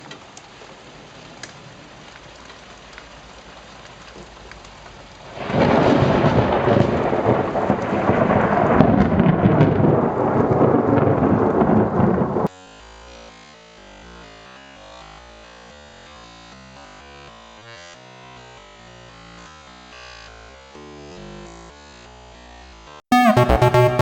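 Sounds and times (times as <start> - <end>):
rain falling: 0.0 - 12.5
thunderclap and rumble: 5.3 - 12.5.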